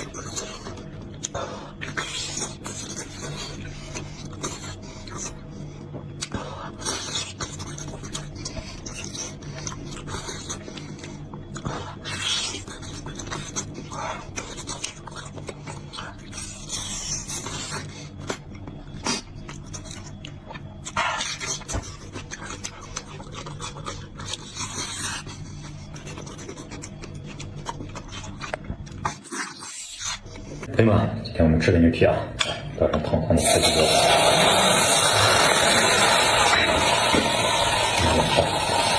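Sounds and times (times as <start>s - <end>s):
person chewing wetly: 0.0s - 30.6s
steady low hum: 0.0s - 38.9s.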